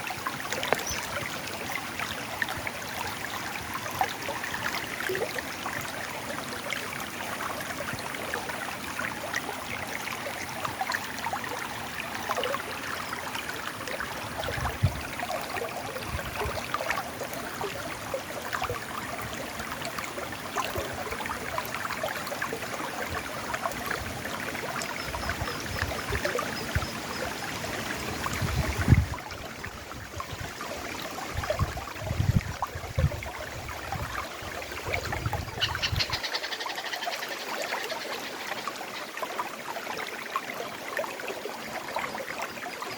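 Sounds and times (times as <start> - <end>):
river water flowing over rocks: 0.0 - 42.9.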